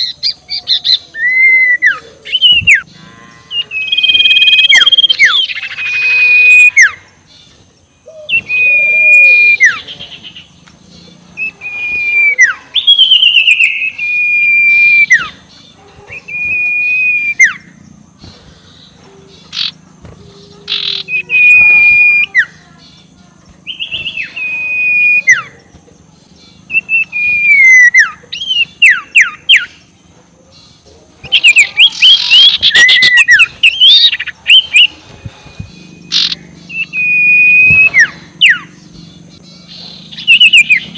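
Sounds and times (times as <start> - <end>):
scops owl whistled calls: 0.0 - 22.7, 23.6 - 25.7, 26.5 - 30.6, 31.2 - 40.9
owl cackling calls: 3.5 - 7.2, 8.0 - 10.5, 11.4 - 17.8, 18.8 - 19.8, 20.4 - 22.6, 26.7 - 29.9, 31.2 - 38.8, 39.6 - 40.9.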